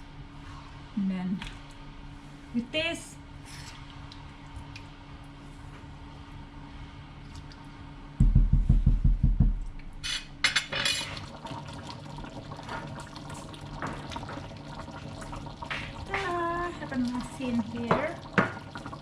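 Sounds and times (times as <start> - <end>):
heavy low thumps: 8.2 - 9.9
water running: 10.5 - 19.0.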